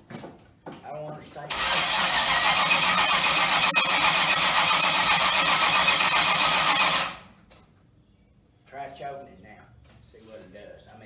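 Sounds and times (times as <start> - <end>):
car engine cranking by starter: 1.5 - 7.3.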